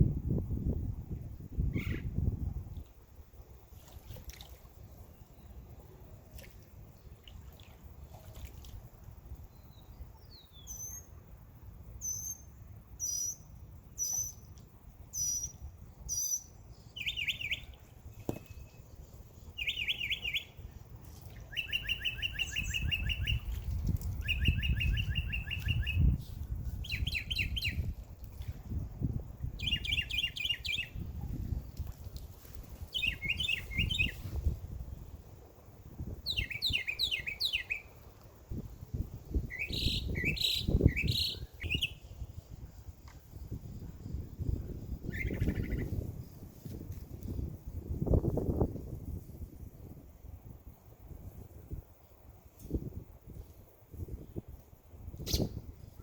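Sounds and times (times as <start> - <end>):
birds chirping: 32.9 - 34.2, 39.5 - 42.0.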